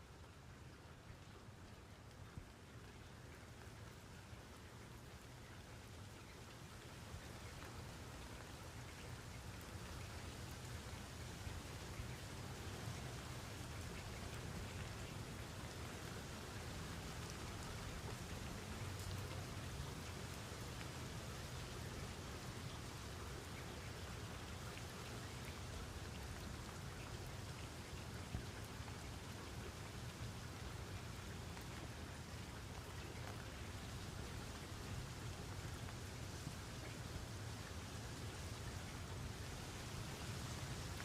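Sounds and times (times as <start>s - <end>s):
steady rain: 0.0s - 41.0s
raindrop ticks: 1.1s - 22.8s.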